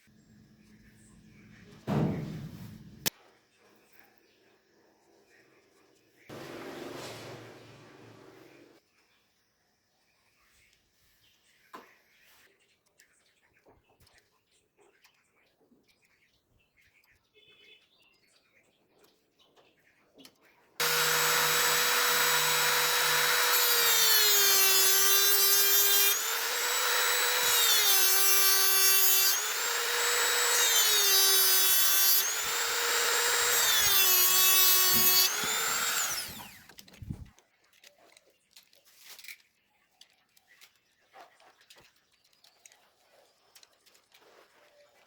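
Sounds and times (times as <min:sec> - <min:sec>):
rotary tool whining: 0:20.8 - 0:37.3.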